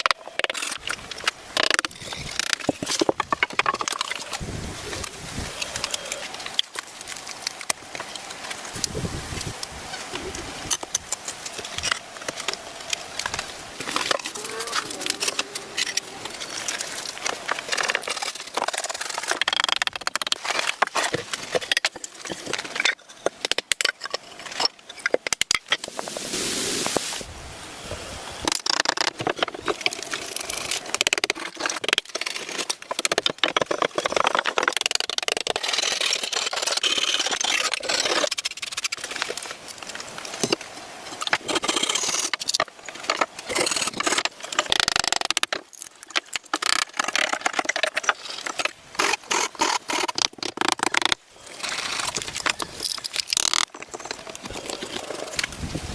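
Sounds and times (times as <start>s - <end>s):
tools scraping wood: 41.4s - 55.5s.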